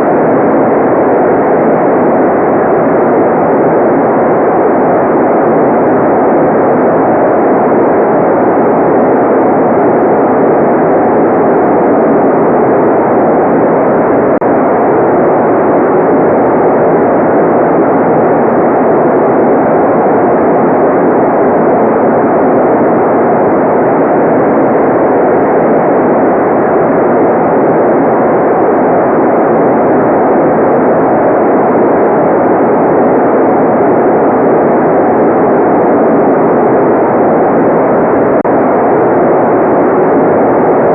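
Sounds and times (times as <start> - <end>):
muffled white noise: 0.0 - 40.9.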